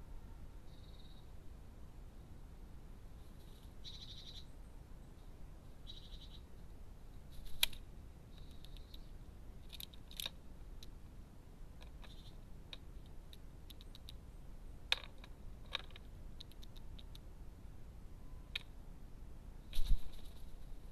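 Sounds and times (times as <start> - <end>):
high rapid bird chirping: 3.8 - 4.5, 5.8 - 6.5
birds clicking and tapping: 7.4 - 11.0, 11.8 - 14.2, 14.9 - 17.3.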